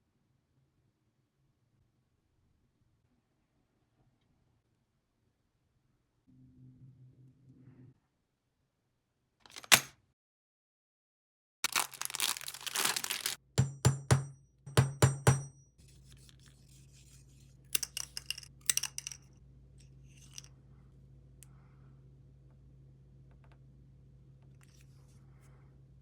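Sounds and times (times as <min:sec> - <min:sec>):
rough tearing noise: 0:11.6 - 0:13.4
faint steady hum: 0:15.8 - 0:26.0.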